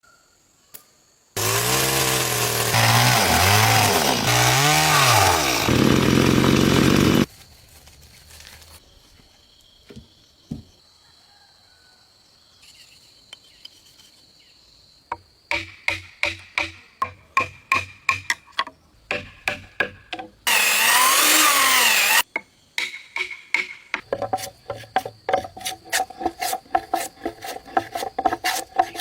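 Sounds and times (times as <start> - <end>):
chainsaw cutting timber: 1.4 - 7.3, 20.5 - 22.2.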